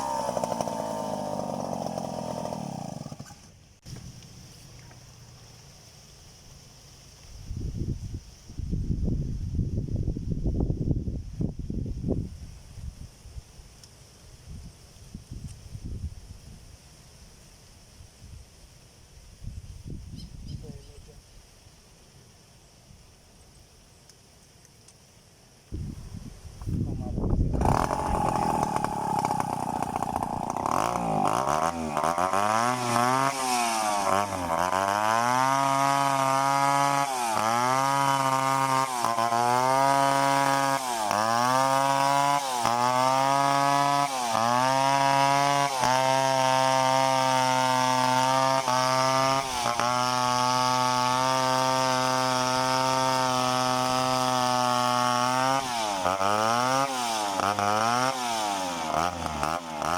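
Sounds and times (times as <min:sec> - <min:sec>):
chainsaw cutting wood at high revs: 0:00.0 - 0:04.0, 0:26.7 - 0:59.9.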